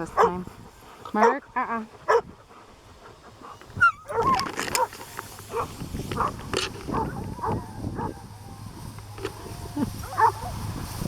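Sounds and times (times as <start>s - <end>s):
dogs whining and yipping: 3.0s - 10.7s
undergrowth crackling: 3.1s - 11.0s.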